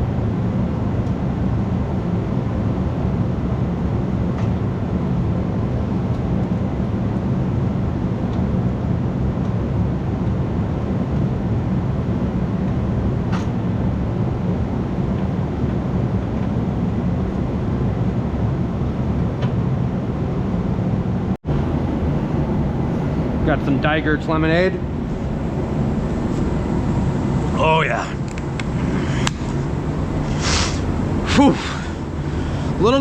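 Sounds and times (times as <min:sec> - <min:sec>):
diesel truck engine running: 0:21.5 - 0:33.0.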